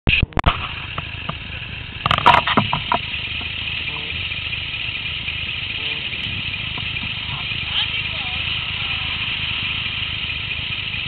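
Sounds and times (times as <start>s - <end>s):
motorcycle engine idling: 0.5s - 11.0s
short loud clatter: 2.0s - 3.2s.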